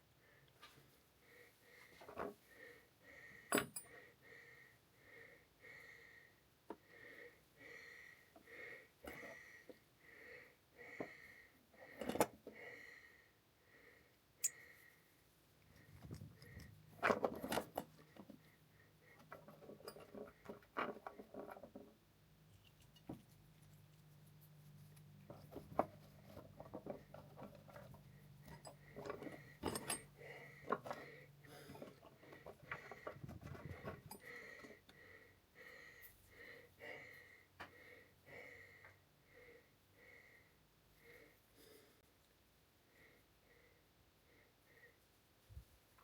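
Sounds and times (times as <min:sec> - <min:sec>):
metal tools clinking: 0:28.4 - 0:30.2.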